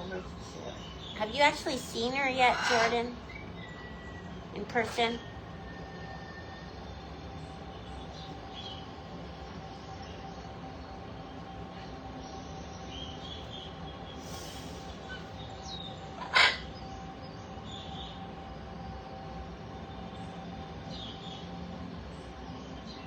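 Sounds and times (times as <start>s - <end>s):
faint constant hum: 0.0s - 23.0s
parrots chirping: 1.1s - 5.2s, 14.3s - 16.8s.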